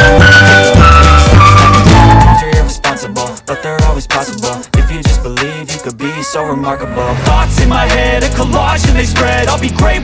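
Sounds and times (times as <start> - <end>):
held synth and bass note: 0.0 - 2.4
hip-hop drum beat: 0.0 - 6.3, 7.2 - 10.0.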